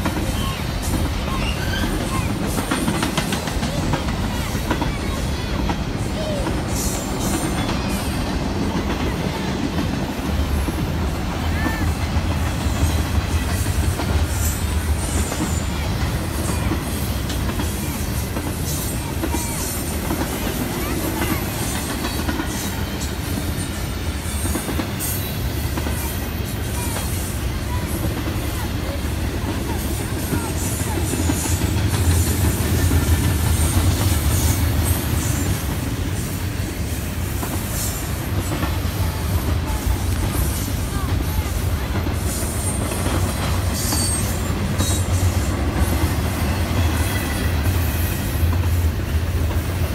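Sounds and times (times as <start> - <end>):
train wheels rumbling on rail: 0.0 - 49.9
wheel squeals: 43.8 - 45.0.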